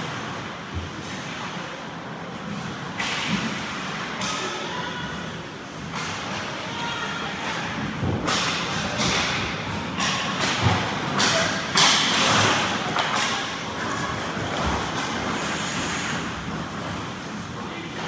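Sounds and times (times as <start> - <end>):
puck and sticks hitting boards: 7.4 - 15.8
skate blades scraping ice: 9.1 - 17.6.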